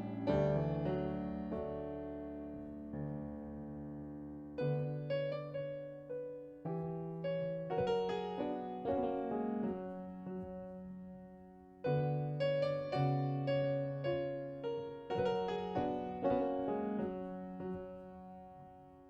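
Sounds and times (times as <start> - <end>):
slow gentle piano: 0.0 - 19.0.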